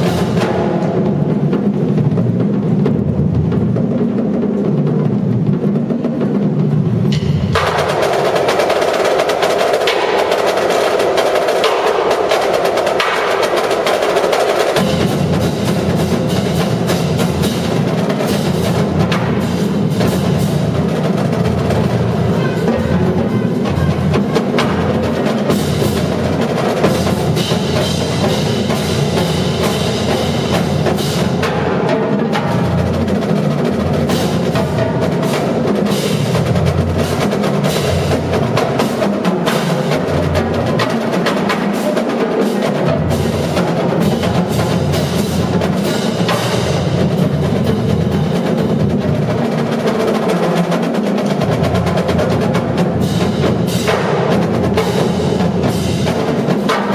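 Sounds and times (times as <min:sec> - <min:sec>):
bass drums: 0:00.0 - 0:08.1, 0:14.8 - 0:38.8
snare drum rolls: 0:00.0 - 0:56.9.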